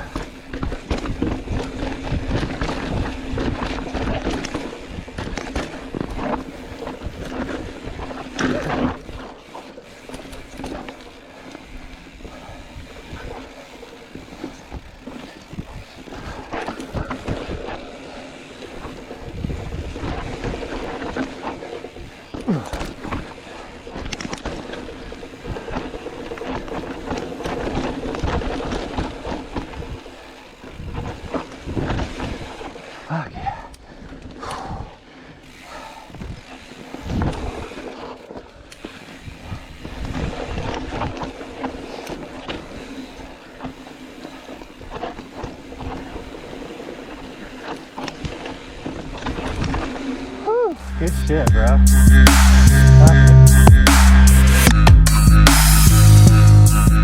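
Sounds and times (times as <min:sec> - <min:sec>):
bike tyres crunching over rock: 0:00.0 - 0:50.6
bike chain and frame rattling: 0:00.0 - 0:50.8.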